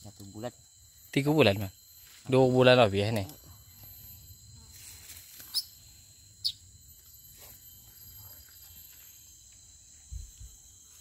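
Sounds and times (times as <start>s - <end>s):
insect drone: 0.0s - 11.0s.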